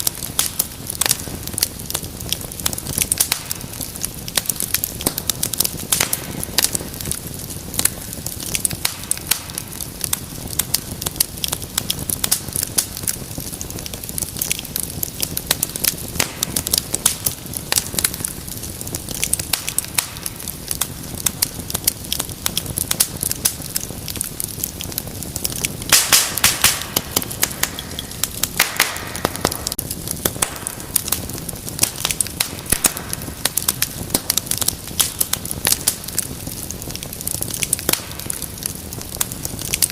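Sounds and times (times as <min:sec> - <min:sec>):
fire crackling and popping: 0:00.0 - 0:39.9
fire hiss: 0:00.0 - 0:39.9
low rumble of flame: 0:00.0 - 0:39.9.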